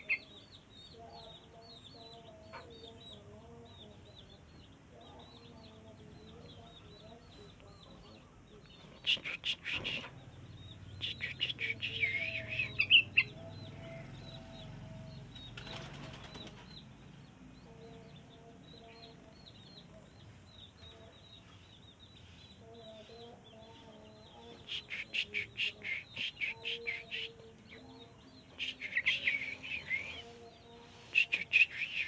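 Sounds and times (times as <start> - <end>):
bird chirping: 0.0 - 32.0
wings flapping: 15.4 - 16.9.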